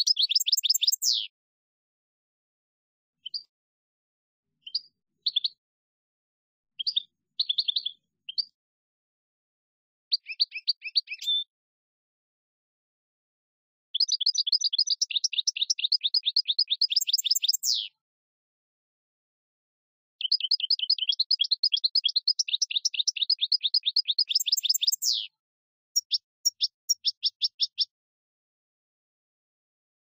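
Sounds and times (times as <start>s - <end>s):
bird song rapid high chirps: 0.0s - 1.3s, 3.2s - 3.5s, 4.6s - 5.6s, 6.8s - 8.6s, 10.1s - 11.5s, 13.9s - 18.0s, 20.2s - 25.4s, 26.0s - 28.0s.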